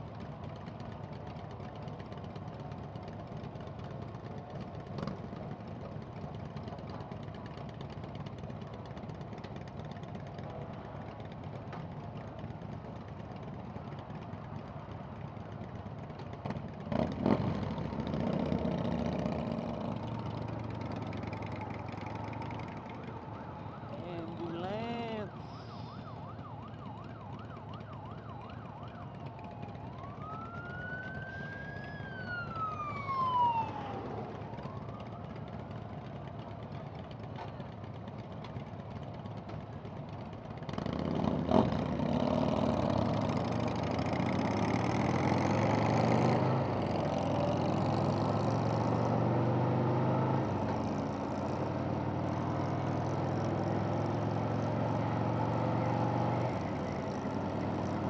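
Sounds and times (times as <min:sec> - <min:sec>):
motorcycle engine: 0:15.2 - 0:25.2, 0:27.1 - 0:58.0
siren wailing: 0:22.4 - 0:35.8.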